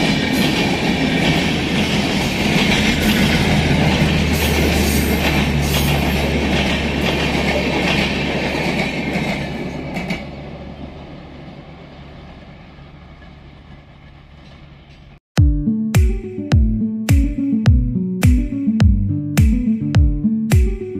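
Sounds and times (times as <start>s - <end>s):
train wheels rumbling and clacking: 0.0s - 10.4s.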